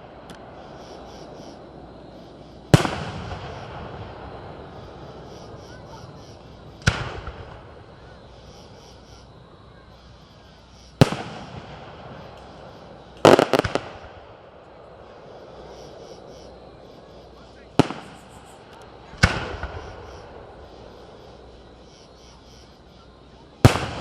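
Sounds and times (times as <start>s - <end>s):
firework bangs echoing: 2.3s - 8.8s, 10.9s - 15.8s, 17.6s - 21.4s, 23.6s - 24.0s
firework cracks: 2.6s - 8.1s, 10.9s - 15.7s, 17.7s - 21.3s, 23.6s - 24.0s.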